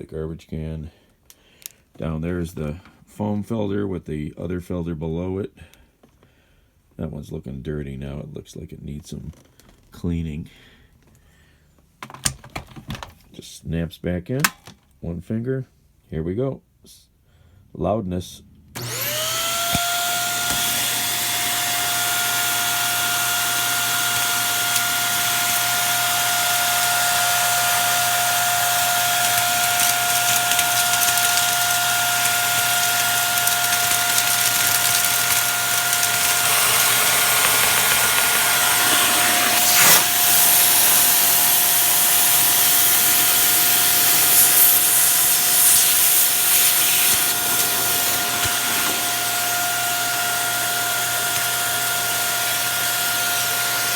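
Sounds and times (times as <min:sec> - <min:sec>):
vacuum cleaner running: 0:18.8 - 0:53.9.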